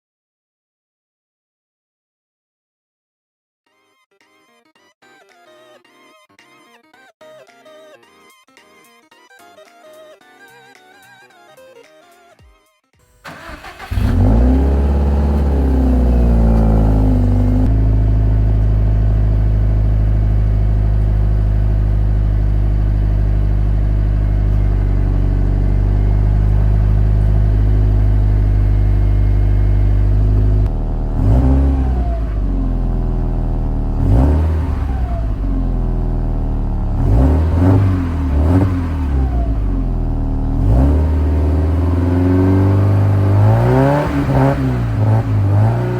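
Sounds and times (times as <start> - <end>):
car engine starting: 13.1 - 45.9
engine revving through exhaust: 13.3 - 45.9.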